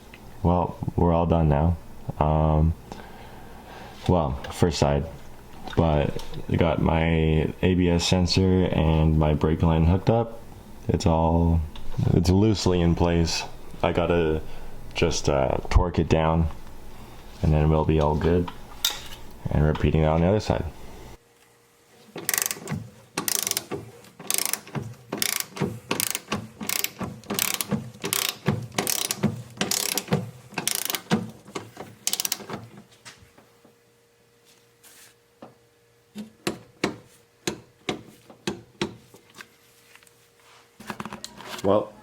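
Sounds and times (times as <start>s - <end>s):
ratchet wrench clicking: 22.3s - 22.6s, 23.2s - 31.1s, 32.1s - 32.5s.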